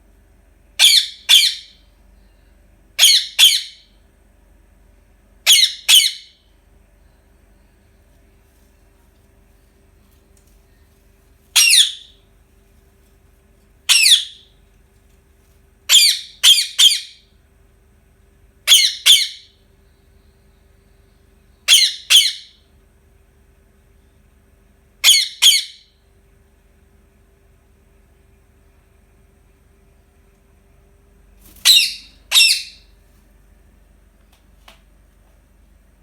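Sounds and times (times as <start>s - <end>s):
parakeet squawking: 0.8s - 1.8s, 3.0s - 3.8s, 5.4s - 6.3s, 11.6s - 12.2s, 13.9s - 14.5s, 15.9s - 17.2s, 18.7s - 19.5s, 21.7s - 22.6s, 25.0s - 25.8s, 31.6s - 32.9s.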